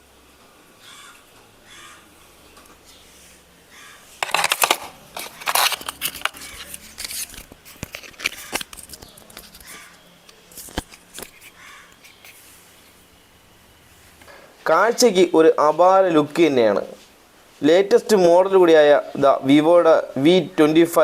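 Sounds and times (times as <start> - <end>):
packaging rustling and crinkling: 4.2 - 12.3.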